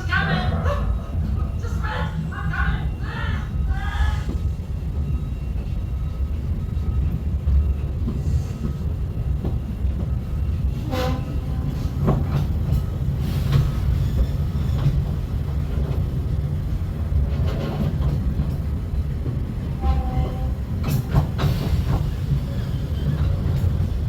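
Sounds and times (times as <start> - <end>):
train rumbling along track: 0.0 - 24.0.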